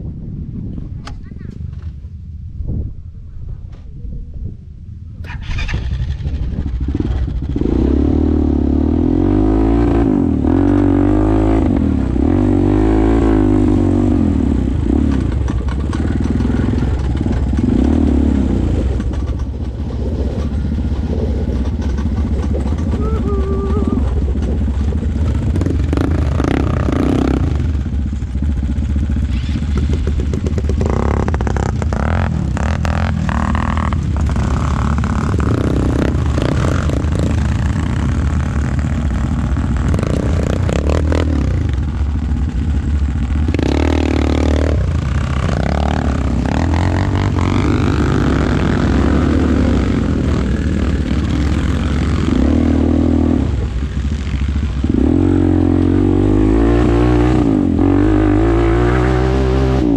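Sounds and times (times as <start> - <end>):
atv engine revving: 5.2 - 59.9
clattering: 18.9 - 23.1.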